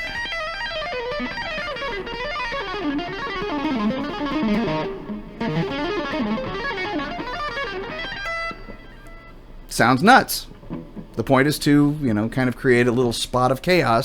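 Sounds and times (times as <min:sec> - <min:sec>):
electric guitar fast lick: 0:00.0 - 0:09.3.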